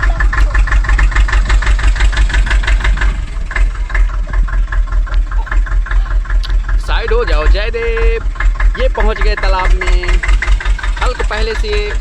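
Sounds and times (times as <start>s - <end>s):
toy tractor engine chugging: 0.0s - 12.0s.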